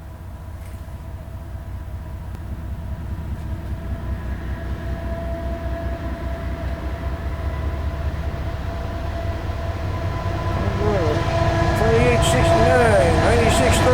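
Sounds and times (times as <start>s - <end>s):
locomotive engine rumble: 9.0s - 13.9s
high steady whining tones: 10.4s - 13.9s.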